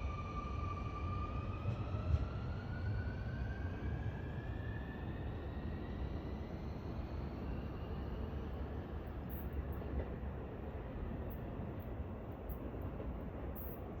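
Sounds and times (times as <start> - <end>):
train low rumble: 0.0 - 14.0.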